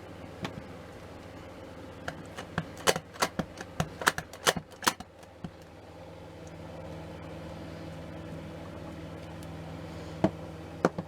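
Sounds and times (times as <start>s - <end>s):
craft tools clicking and tapping: 2.1s - 5.7s.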